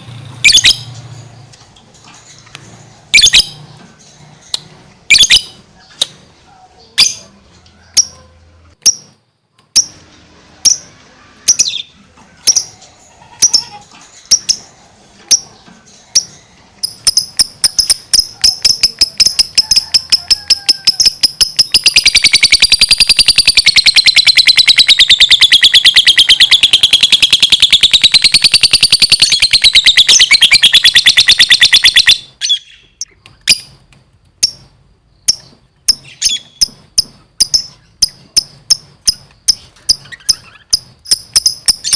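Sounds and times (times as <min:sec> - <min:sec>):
bird chirping: 0:00.2 - 0:41.9
rapid bird chatter: 0:10.7 - 0:33.8, 0:34.5 - 0:41.9.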